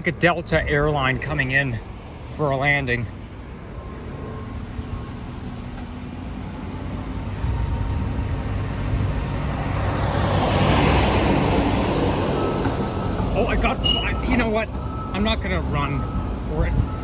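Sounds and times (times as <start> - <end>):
road traffic: 0.0 - 17.0
vehicle passing close by: 4.4 - 13.2.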